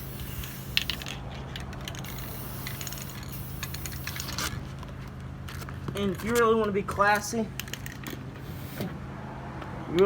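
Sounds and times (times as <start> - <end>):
spray can spraying: 2.0 - 4.5.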